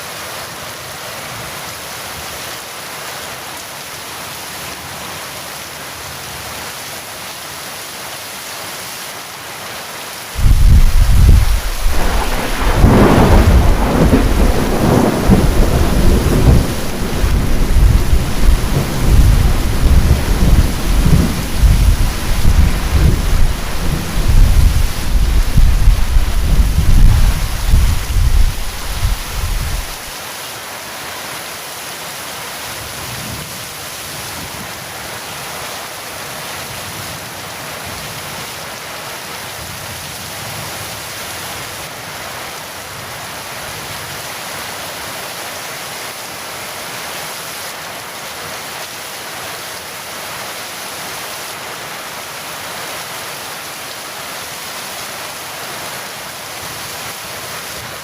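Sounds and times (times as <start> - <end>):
heavy rain falling: 0.0 - 58.0
low thunder rumble: 10.4 - 30.1.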